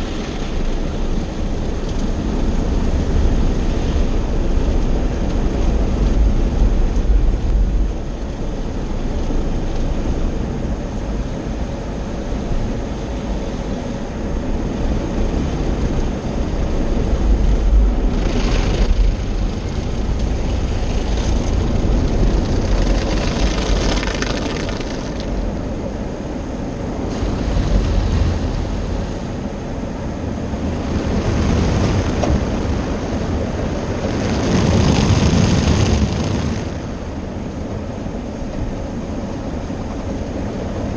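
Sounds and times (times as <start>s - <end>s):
car wash machinery rumble: 0.0s - 40.9s.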